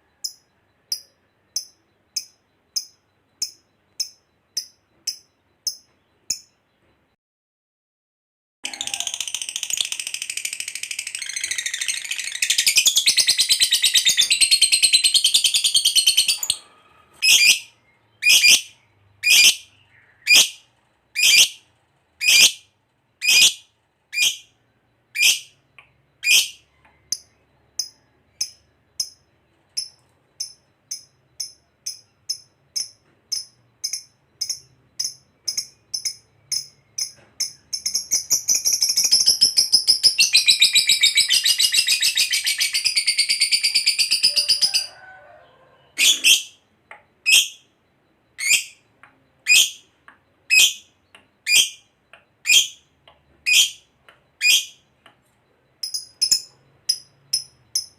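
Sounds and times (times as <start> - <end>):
lovebird chirps: 0.0 - 7.0, 8.6 - 57.9
lovebird chattering trill: 8.7 - 16.6, 17.2 - 25.6, 26.2 - 29.2, 29.8 - 44.9, 48.4 - 48.8, 49.4 - 49.9, 50.5 - 54.8, 55.8 - 57.9
lovebird shrill calls: 17.2 - 20.6, 21.2 - 21.6, 22.2 - 22.6, 23.2 - 24.5, 26.2 - 26.6, 54.4 - 54.8.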